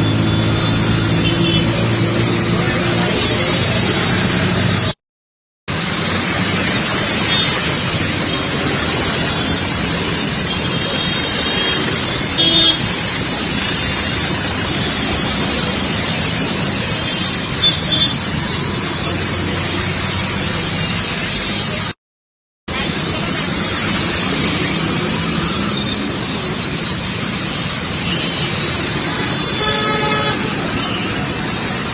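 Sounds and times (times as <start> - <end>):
rushing floodwater: 0.0 - 5.0, 5.7 - 22.0, 22.7 - 31.9.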